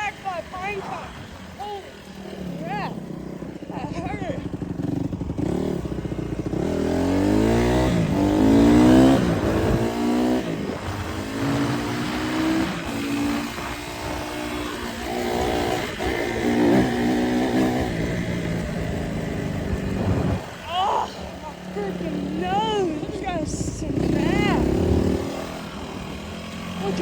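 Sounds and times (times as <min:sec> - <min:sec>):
dirt bike engine accelerating: 0:00.0 - 0:27.0.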